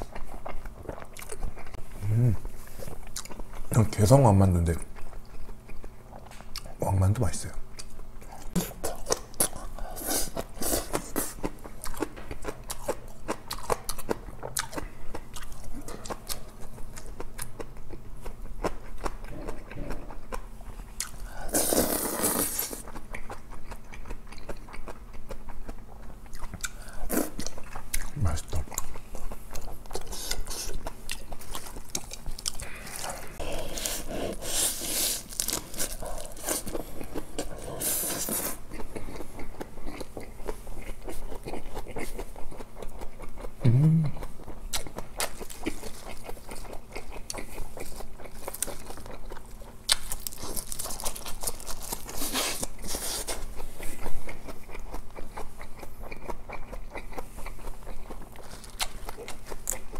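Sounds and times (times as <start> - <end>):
person chewing: 0.0 - 3.8, 4.8 - 6.8, 7.7 - 59.9
low hum: 43.6 - 44.3
small crunches: 49.9 - 53.4.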